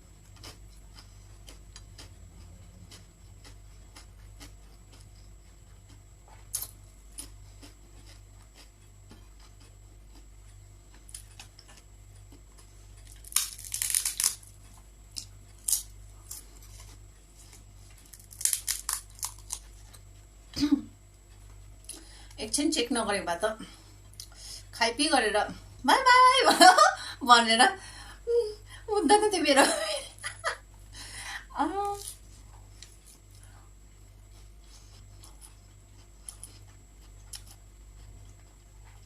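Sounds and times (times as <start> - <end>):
low steady hum: 0.0 - 39.0
crackly crunching: 0.1 - 20.2, 31.8 - 33.6, 34.3 - 39.0
faint chewing with clicks: 0.1 - 20.3, 31.8 - 39.0.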